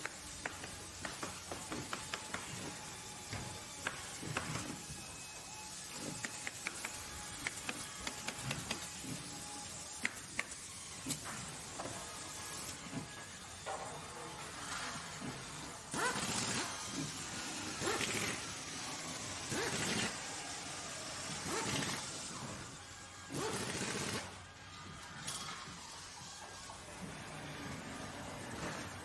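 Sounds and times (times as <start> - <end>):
sharp clicks and knocks: 6.1 - 8.9.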